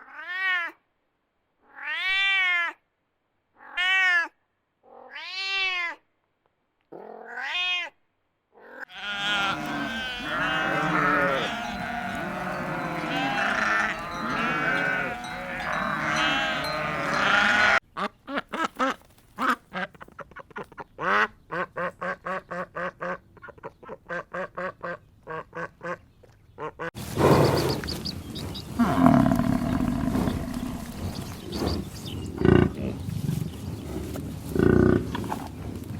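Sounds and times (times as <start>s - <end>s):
farm animals calling: 8.8s - 35.9s
ducks quacking: 9.0s - 26.0s.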